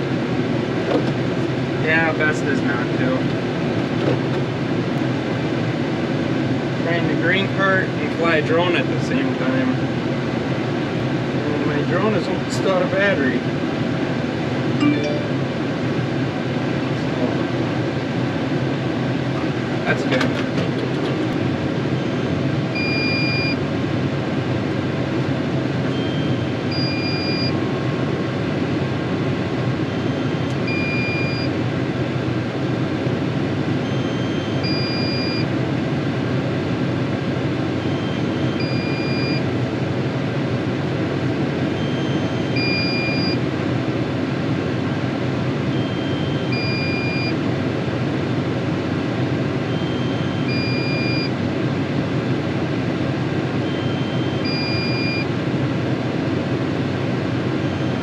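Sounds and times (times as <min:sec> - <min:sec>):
tractor engine running: 0:13.5 - 0:22.9
two-note electronic warning beep: 0:14.8 - 0:15.6, 0:22.8 - 0:23.6, 0:25.9 - 0:27.6, 0:30.0 - 0:31.6, 0:33.9 - 0:35.5, 0:37.9 - 0:39.4, 0:41.8 - 0:43.4, 0:45.7 - 0:47.4, 0:49.7 - 0:51.3, 0:53.6 - 0:55.3.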